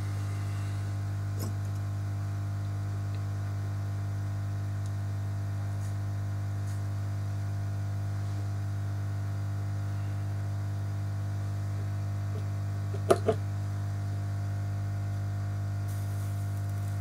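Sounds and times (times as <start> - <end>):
electrical mains hum: 0.0 - 17.0
faint hiss: 15.8 - 17.0.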